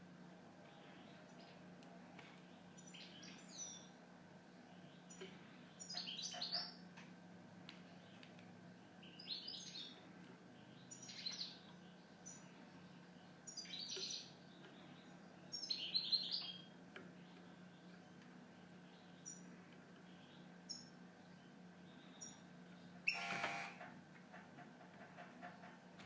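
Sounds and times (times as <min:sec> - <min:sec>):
goldfinch twittering song: 0:04.7 - 0:06.8, 0:10.6 - 0:23.3.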